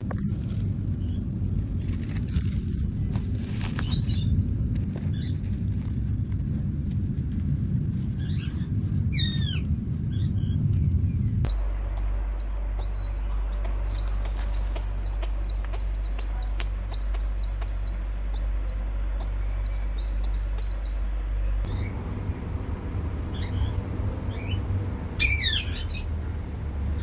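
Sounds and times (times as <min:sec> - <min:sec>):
low rumble: 0:04.2 - 0:27.0
steady low hum: 0:11.0 - 0:27.0
falling squeak: 0:11.5 - 0:27.0
pet birds chirping: 0:11.5 - 0:27.0.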